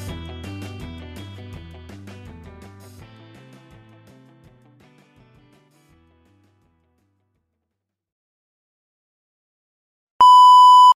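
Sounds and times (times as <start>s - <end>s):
background music: 0.0s - 7.2s.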